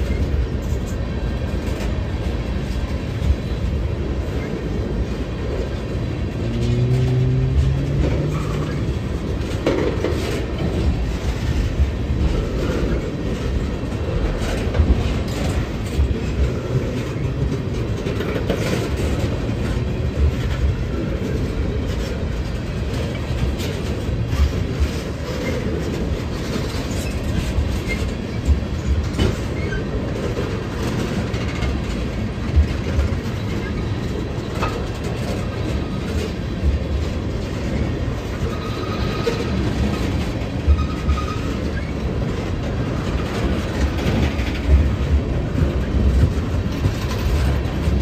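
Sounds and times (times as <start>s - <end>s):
train rumbling past: 0.0s - 48.0s
train wheels clacking: 0.0s - 48.0s.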